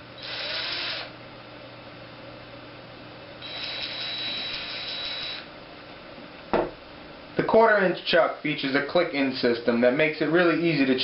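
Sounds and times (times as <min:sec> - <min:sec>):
faint steady hum: 0:00.0 - 0:11.0
impact driver motor whirring: 0:00.2 - 0:01.2, 0:03.4 - 0:05.5.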